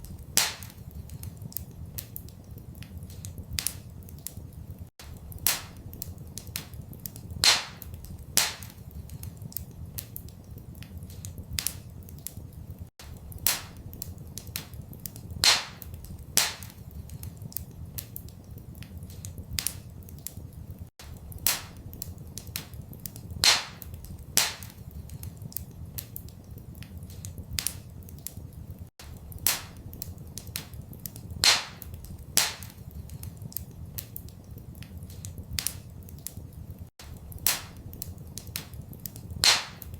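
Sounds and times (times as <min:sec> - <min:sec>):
fire pops: 0:00.0 - 0:39.9
wood fire crackling: 0:00.0 - 0:39.9.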